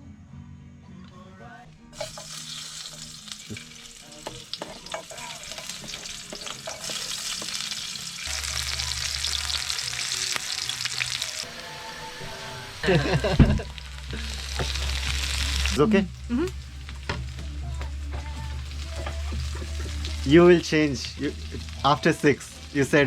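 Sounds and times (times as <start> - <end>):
food sizzling in hot oil: 2.0 - 23.0.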